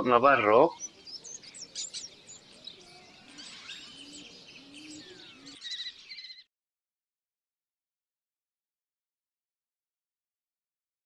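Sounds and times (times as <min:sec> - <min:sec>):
small birds chirping and whistling: 0:00.5 - 0:06.5.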